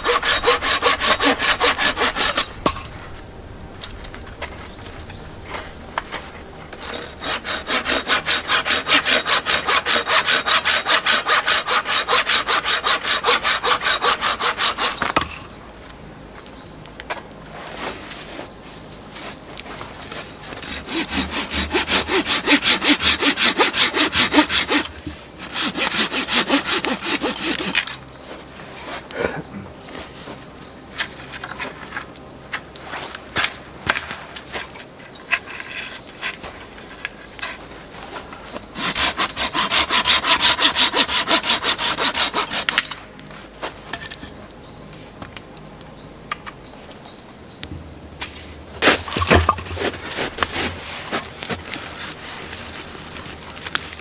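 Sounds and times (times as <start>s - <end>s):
hand saw cutting wood: 0.0s - 3.0s, 5.4s - 15.5s, 19.2s - 43.1s, 48.2s - 54.0s.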